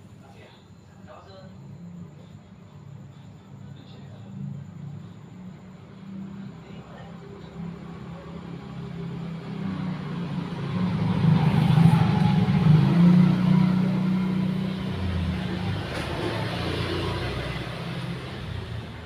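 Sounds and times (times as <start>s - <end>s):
vehicle engine passing by: 4.3s - 19.0s.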